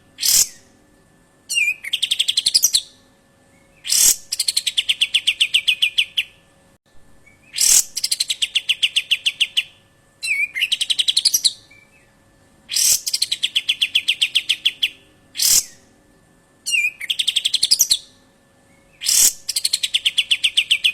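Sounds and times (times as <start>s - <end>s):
bird rattling call: 0.2s - 0.6s, 3.9s - 4.2s, 7.6s - 8.0s, 19.0s - 19.5s.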